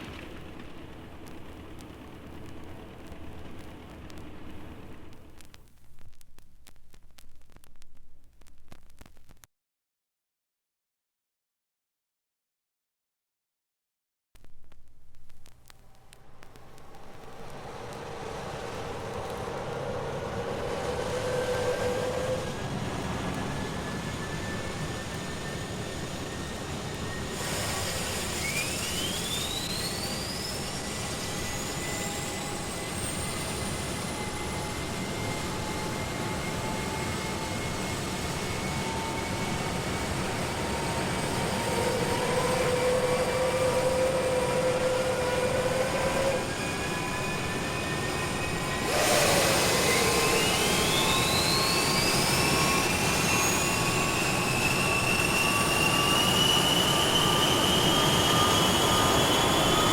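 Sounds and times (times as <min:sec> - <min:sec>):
high whine rising in pitch: 0:14.4 - 0:59.9.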